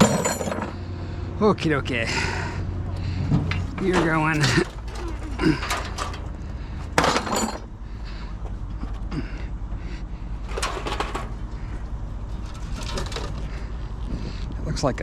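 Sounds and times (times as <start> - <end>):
loud metal clank: 0.0 - 0.8, 6.9 - 7.7
scrap metal clattering: 0.0 - 0.8, 3.0 - 7.8, 10.4 - 11.7, 12.4 - 13.7
steady low hum: 0.0 - 15.0.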